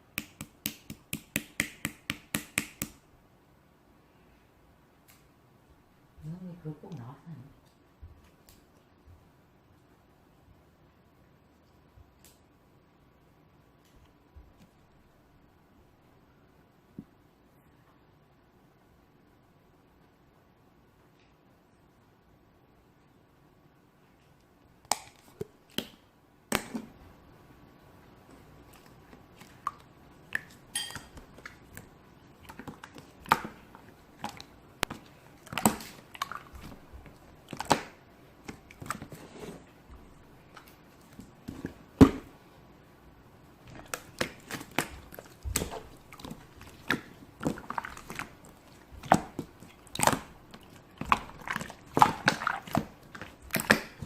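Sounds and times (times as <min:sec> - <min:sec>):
slime squished by hand: 0:28.6 - 0:39.2, 0:43.6 - 0:54.0.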